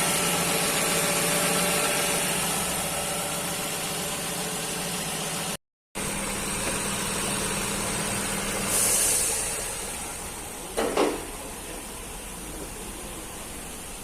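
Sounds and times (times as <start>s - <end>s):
car engine idling: 0.0s - 14.0s
brief hiss: 8.7s - 9.8s.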